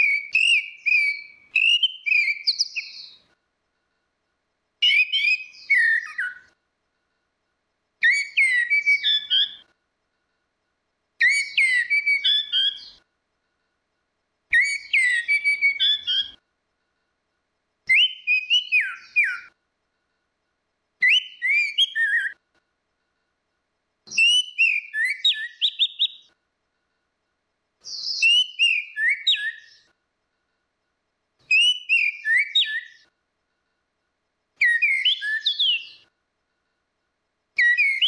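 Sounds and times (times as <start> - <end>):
thrush singing whistled notes: 0.0 - 3.3, 4.8 - 6.6, 8.0 - 9.7, 11.2 - 13.1, 14.5 - 16.4, 17.9 - 19.6, 21.0 - 22.4, 24.1 - 26.4, 27.8 - 29.9, 31.4 - 33.1, 34.6 - 36.1, 37.6 - 38.0.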